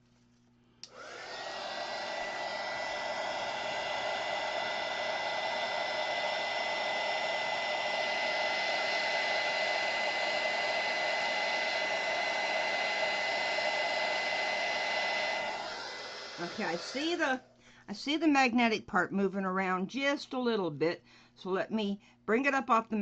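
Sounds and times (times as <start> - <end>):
heat gun whine and air hiss: 0.9 - 17.2.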